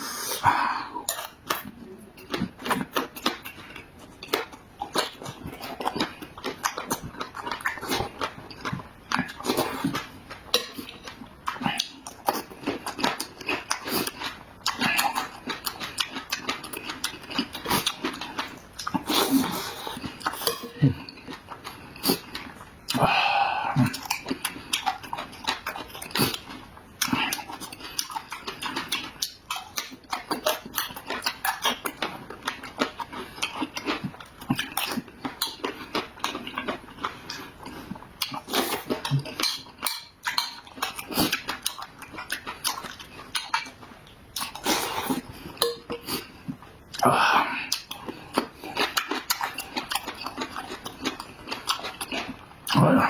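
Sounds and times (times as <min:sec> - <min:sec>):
wet chewing and smacking: 0:01.1 - 0:53.0.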